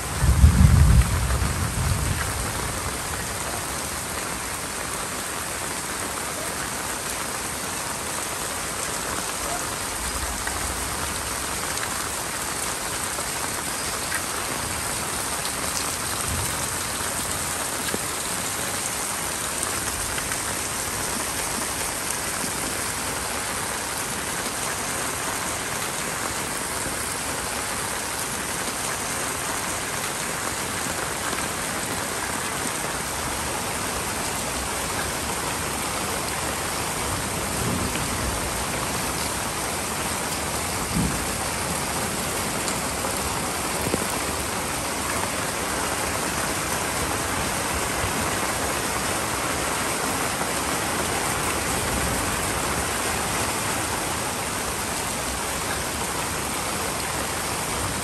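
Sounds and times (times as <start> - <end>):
thunder rumble: 0.0 - 3.1
steady rain hiss: 0.0 - 58.0.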